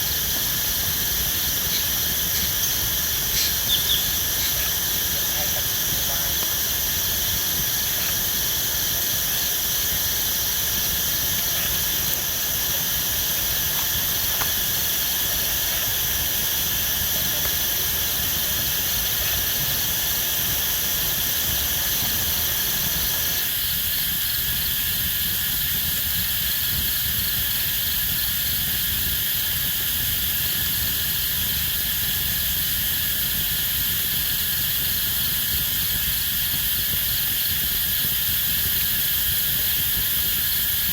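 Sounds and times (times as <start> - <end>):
insect chorus chirring: 0.0 - 40.9.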